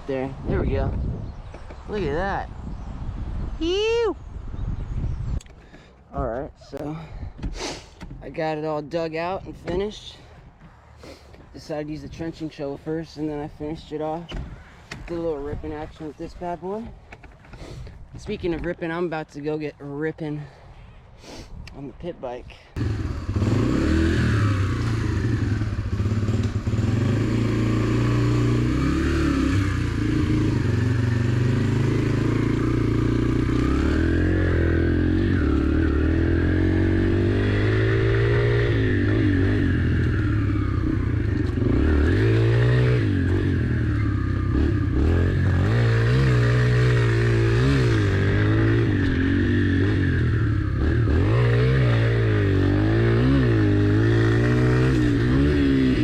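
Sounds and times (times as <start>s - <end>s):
motorbike engine revving: 22.8s - 56.0s.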